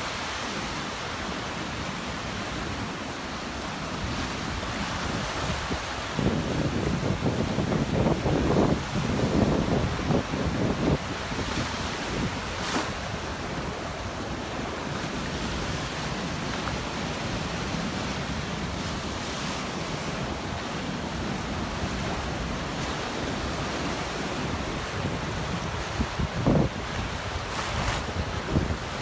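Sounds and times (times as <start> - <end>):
surf washing onto beach: 0.0 - 29.0
wind buffeting microphone: 4.1 - 14.6, 19.9 - 29.0.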